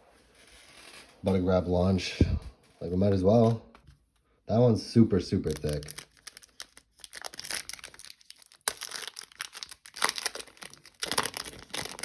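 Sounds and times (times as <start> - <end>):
foil wrapper tearing and crinkling: 5.4 - 12.0.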